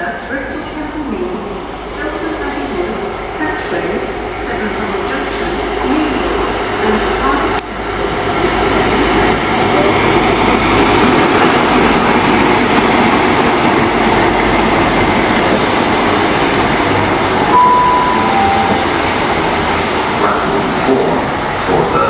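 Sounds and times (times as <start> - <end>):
train passing: 1.5 - 22.0
two-note falling chime: 17.4 - 19.1.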